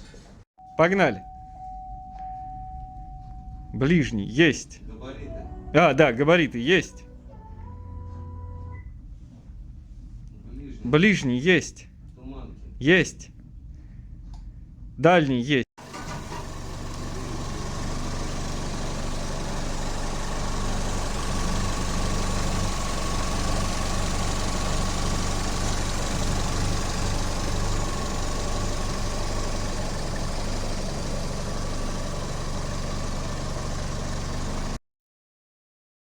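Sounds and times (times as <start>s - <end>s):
car engine idling: 15.8s - 34.8s.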